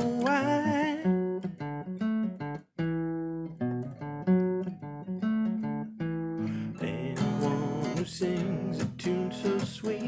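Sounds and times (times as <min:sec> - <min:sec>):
person singing: 0:00.0 - 0:01.3, 0:06.4 - 0:10.0
acoustic guitar plucking: 0:00.0 - 0:10.0.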